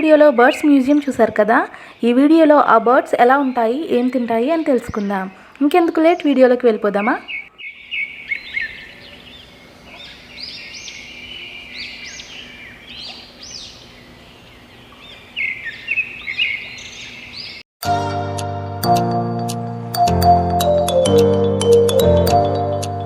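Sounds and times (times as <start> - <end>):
birds chirping: 0.0 - 17.6
music: 17.8 - 23.0.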